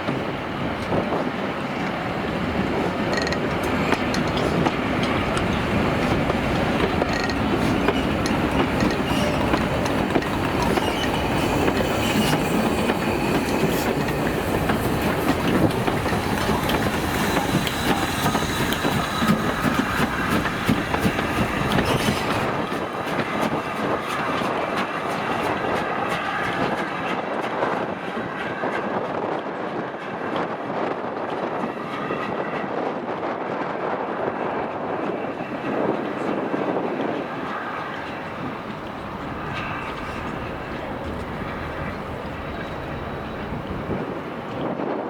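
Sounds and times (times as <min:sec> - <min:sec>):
train wheels clattering over rail joints: 0:00.1 - 0:27.8
faint train wheel squeal: 0:02.7 - 0:29.2, 0:35.0 - 0:44.7.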